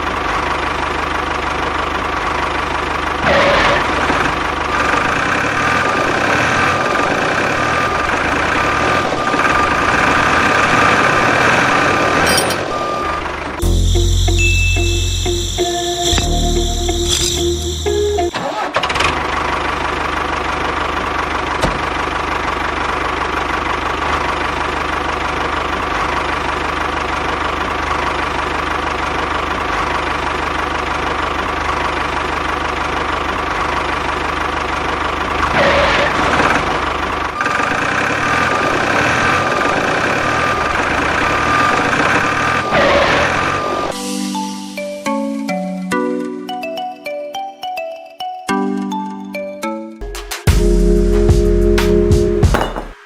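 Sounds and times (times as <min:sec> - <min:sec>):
music: 0:13.6 - 0:18.4, 0:43.9 - 0:53.0.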